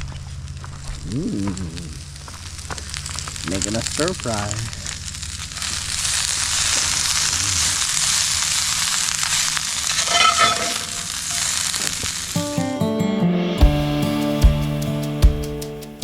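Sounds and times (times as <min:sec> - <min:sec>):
stir-fry sizzling: 0:02.5 - 0:16.0
acoustic guitar music: 0:12.2 - 0:16.0.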